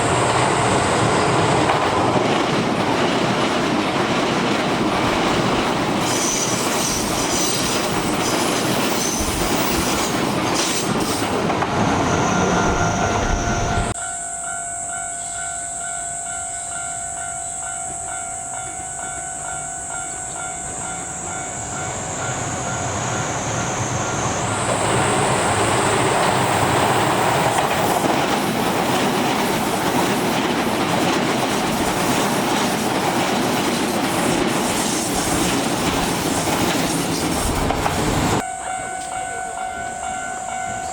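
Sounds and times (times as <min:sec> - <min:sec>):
train passing loudly: 0:00.0 - 0:14.1, 0:15.7 - 0:40.9
train wheels clattering: 0:24.6 - 0:38.4.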